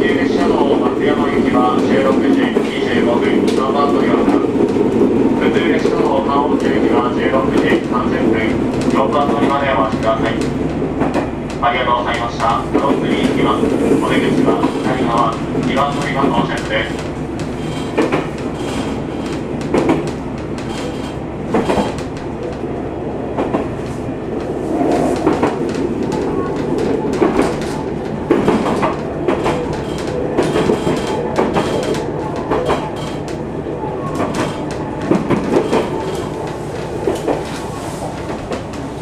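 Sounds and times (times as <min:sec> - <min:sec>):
diesel train rumbling: 0:00.0 - 0:39.0
wheels clacking over rails: 0:00.3 - 0:22.6, 0:25.1 - 0:33.5, 0:34.1 - 0:39.0.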